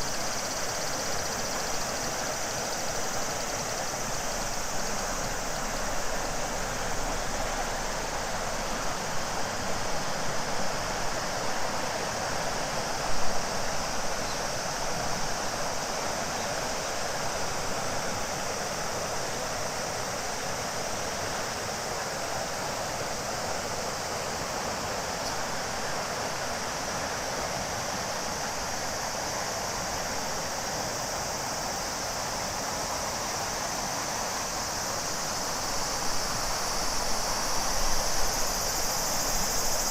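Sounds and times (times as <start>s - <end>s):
cicadas droning: 0.0s - 39.9s
river water rushing: 0.0s - 39.9s.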